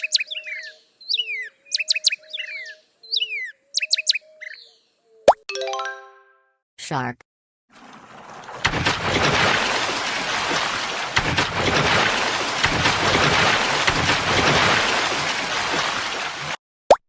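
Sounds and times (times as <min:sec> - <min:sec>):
sea water rushing: 0:07.7 - 0:16.6
water splashes and thumps: 0:07.7 - 0:16.6.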